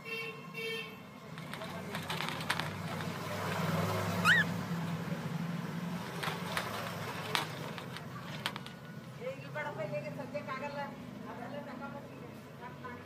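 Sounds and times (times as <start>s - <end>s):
rising bird chirp: 4.2s - 4.6s.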